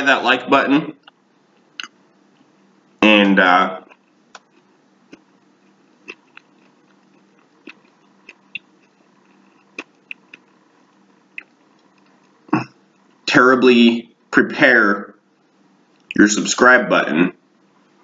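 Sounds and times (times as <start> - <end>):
person chewing food: 3.9 - 13.2.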